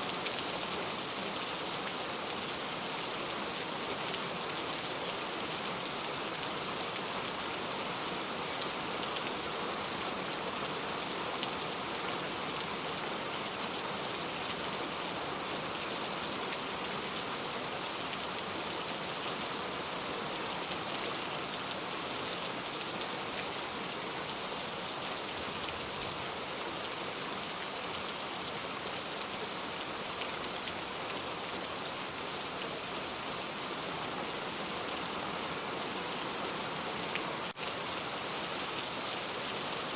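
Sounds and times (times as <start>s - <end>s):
rain pattering on surfaces: 20.0s - 39.9s.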